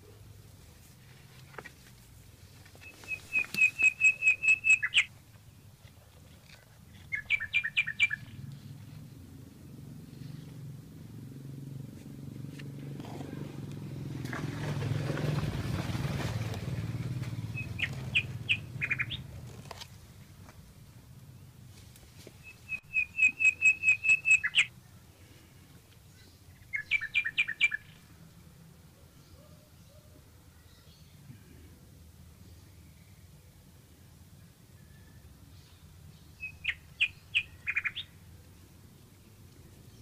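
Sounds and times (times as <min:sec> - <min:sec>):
bird chirping: 0:02.6 - 0:11.4, 0:16.9 - 0:19.8, 0:22.3 - 0:25.0, 0:26.1 - 0:28.2, 0:34.8 - 0:40.0.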